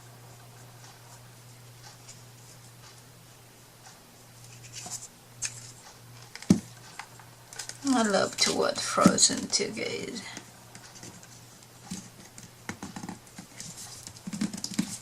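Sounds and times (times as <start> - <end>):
steady low hum: 0.0 - 15.0
hands scratching and clicking: 11.9 - 15.0.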